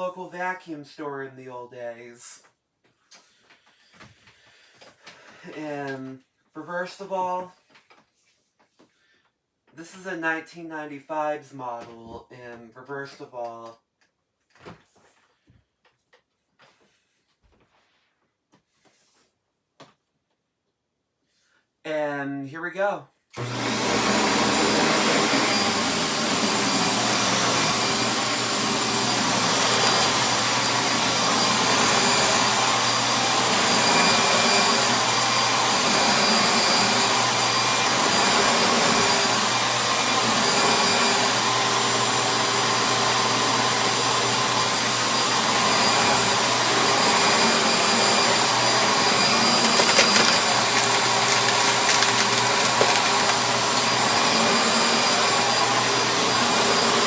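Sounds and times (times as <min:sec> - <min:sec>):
vacuum cleaner motor whine: 0:23.4 - 0:57.0.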